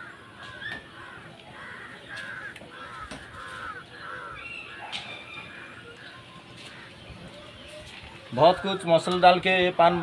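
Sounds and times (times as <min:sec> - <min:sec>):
bird harsh caw-like calls: 0:00.0 - 0:07.6.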